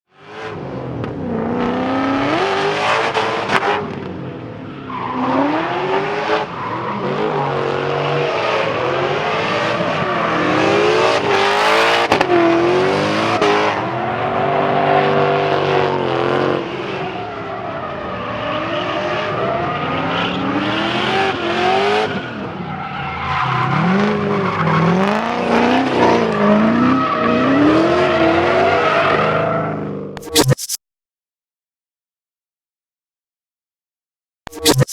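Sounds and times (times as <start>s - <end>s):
car engine revving: 0.3s - 29.1s
tire squeal: 4.4s - 30.4s.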